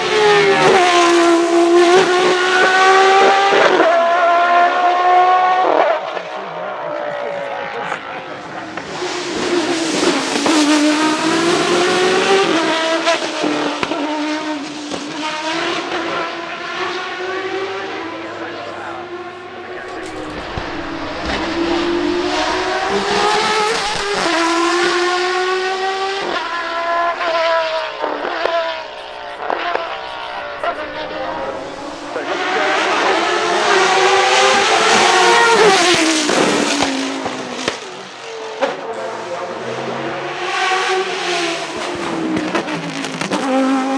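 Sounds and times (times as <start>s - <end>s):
race car engine running: 0.0s - 43.9s
exhaust cracks on overrun: 19.8s - 38.8s, 41.8s - 43.9s.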